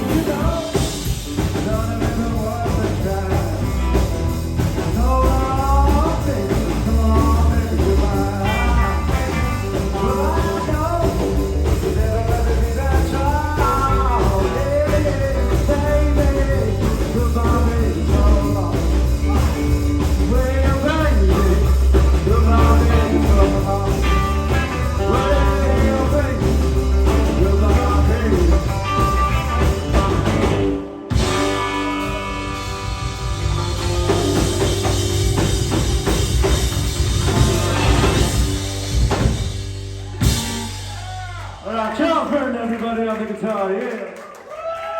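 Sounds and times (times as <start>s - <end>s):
drum kit: 0.0s - 41.6s
heavy bass guitar: 0.0s - 41.8s
electric guitar lead: 6.4s - 12.1s, 13.5s - 41.0s.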